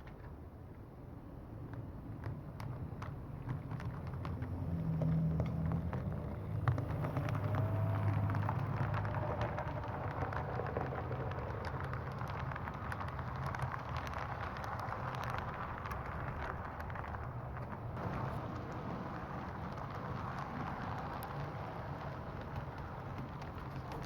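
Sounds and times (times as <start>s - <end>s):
wheels clicking on rails: 0.0s - 24.0s.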